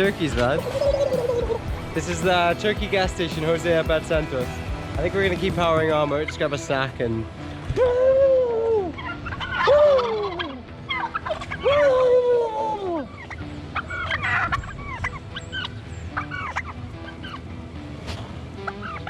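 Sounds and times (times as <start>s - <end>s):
turkeys gobbling: 0.0s - 2.4s, 7.7s - 17.4s, 18.6s - 19.0s.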